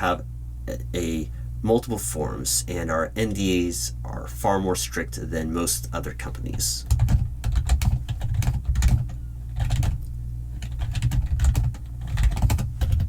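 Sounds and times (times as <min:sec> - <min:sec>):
typing on computer keyboard: 0:06.9 - 0:10.0, 0:10.6 - 0:13.0.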